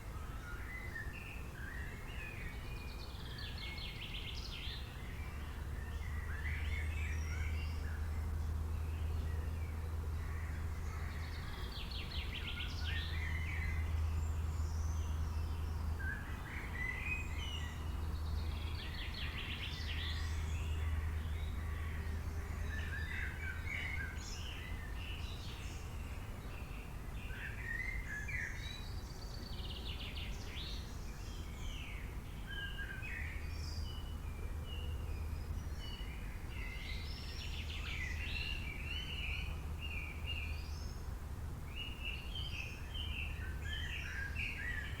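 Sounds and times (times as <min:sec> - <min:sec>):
songbirds chirping and trilling: 0:00.0 - 0:45.0.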